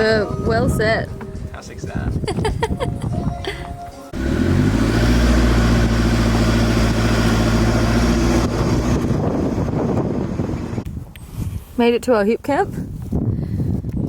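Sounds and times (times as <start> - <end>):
road noise: 3.3 - 11.3
car engine: 4.1 - 10.8.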